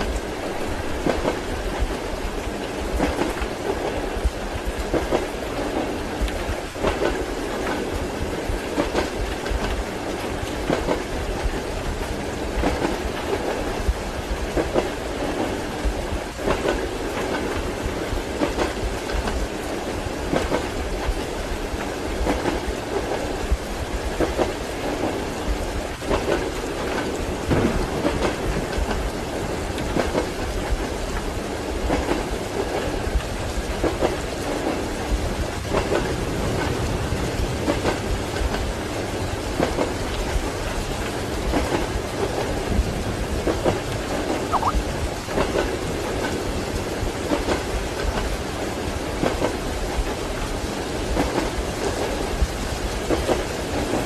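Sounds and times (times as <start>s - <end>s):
rumble of moving train carriage: 0.0s - 54.0s
steady rain: 0.0s - 54.0s
train wheels clacking over rail joints: 25.9s - 44.4s, 45.3s - 54.0s.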